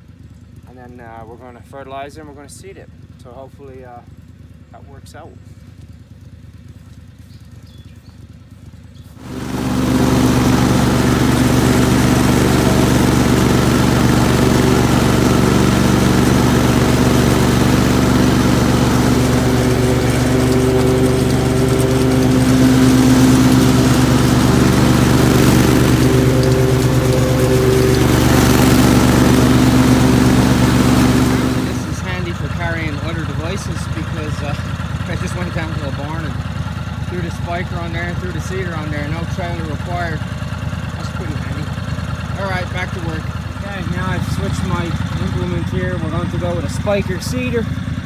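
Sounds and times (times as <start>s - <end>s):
tractor engine running: 9.1s - 48.0s.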